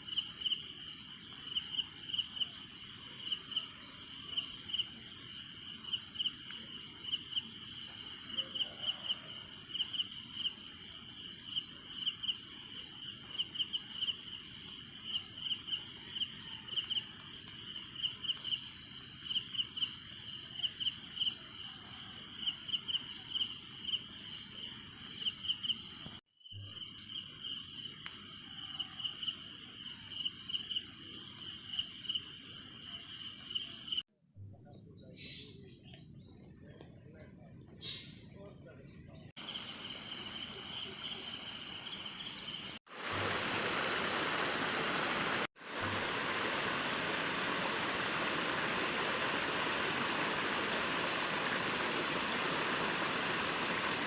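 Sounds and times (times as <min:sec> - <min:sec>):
insect pulsed chirps: 0:00.0 - 0:21.8, 0:22.4 - 0:54.0
insects buzzing: 0:00.0 - 0:21.8, 0:34.6 - 0:54.0.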